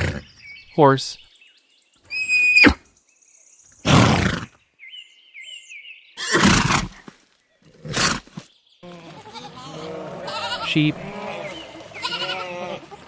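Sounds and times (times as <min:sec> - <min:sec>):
horse snorting: 0:00.0 - 0:00.3, 0:03.8 - 0:04.5, 0:06.2 - 0:07.1, 0:07.7 - 0:08.4
small birds chirping: 0:00.0 - 0:06.6.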